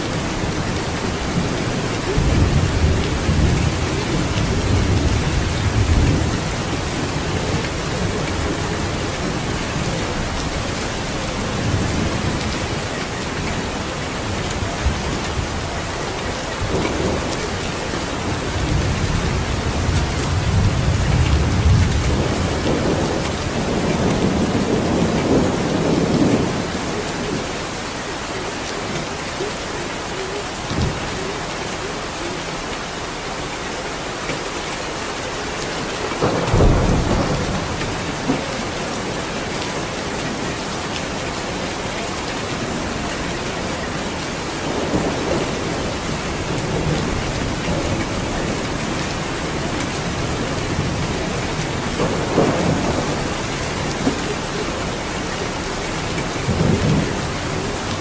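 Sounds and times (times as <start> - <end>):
heavy rainfall: 0.0 - 58.0
rolling thunder: 0.4 - 27.5, 36.2 - 39.7, 44.6 - 58.0.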